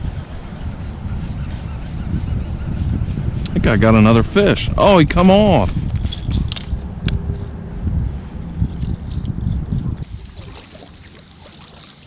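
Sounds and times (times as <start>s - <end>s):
low rumbling handling noise: 3.4s - 11.4s
knocks and rattling clicks: 5.9s - 7.6s.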